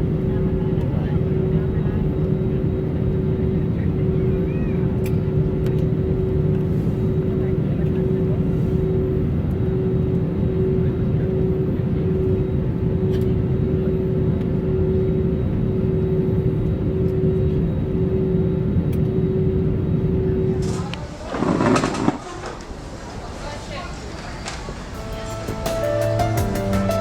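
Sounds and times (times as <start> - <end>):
mid-pitched hum: 0.0 - 21.0.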